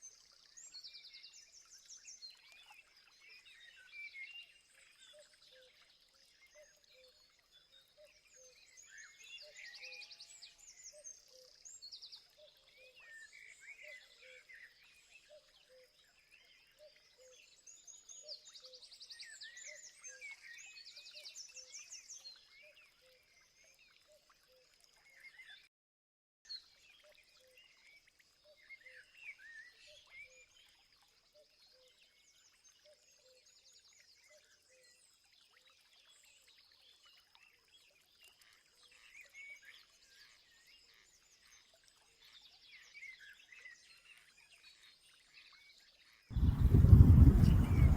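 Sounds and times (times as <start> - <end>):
birds chirping and trilling: 46.4 - 47.9.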